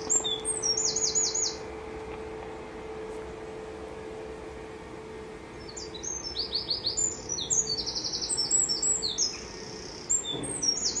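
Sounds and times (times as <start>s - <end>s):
songbird singing: 0.0s - 1.8s, 5.4s - 11.0s
faint steady hum: 0.0s - 11.0s.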